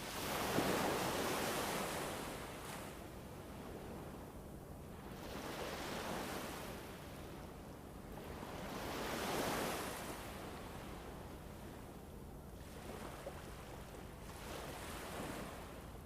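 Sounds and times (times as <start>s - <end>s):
rushing wind or surf: 0.0s - 11.7s.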